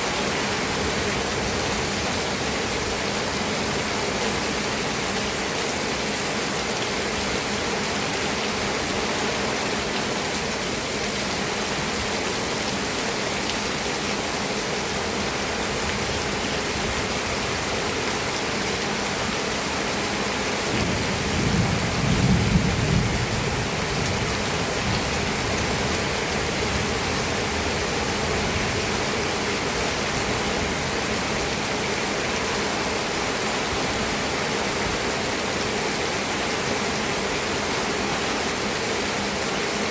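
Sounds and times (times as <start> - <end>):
steady rain: 0.0 - 39.9
thunder rumble: 20.7 - 25.2.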